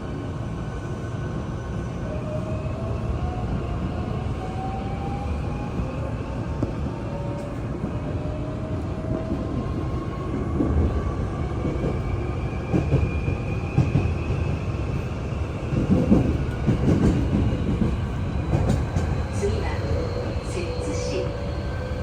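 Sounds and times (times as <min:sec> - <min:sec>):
train wheels rumbling on rail: 0:05.6 - 0:22.0
train thumps and knocks: 0:15.7 - 0:19.8.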